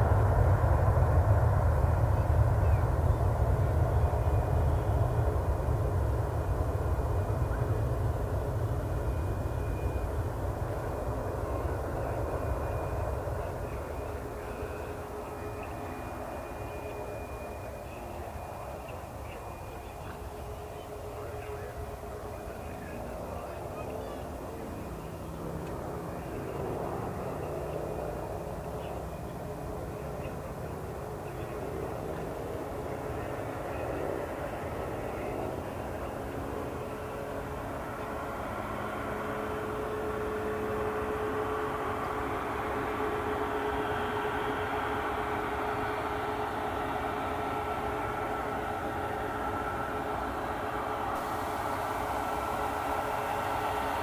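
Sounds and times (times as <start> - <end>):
faint high whine: 0.0 - 54.0
jet engines rumbling: 0.0 - 54.0.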